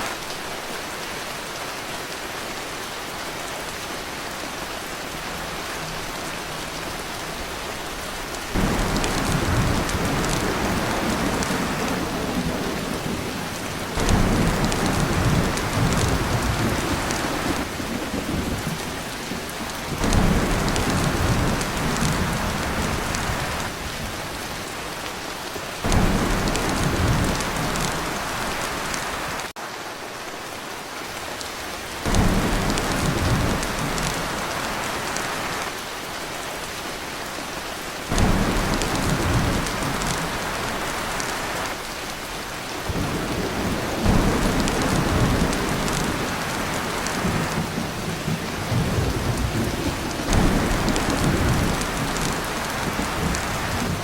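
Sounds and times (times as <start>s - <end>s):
heavy rain on a tin roof: 0.0s - 54.0s
thunder rumbles: 8.5s - 24.2s, 25.8s - 29.5s, 32.0s - 35.6s, 38.1s - 41.7s, 42.8s - 54.0s.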